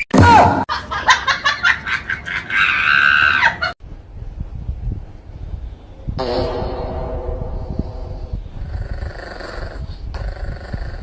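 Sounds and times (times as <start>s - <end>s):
shrill scream with yelps: 2.5s - 3.7s
low rumbling noise: 3.8s - 11.0s.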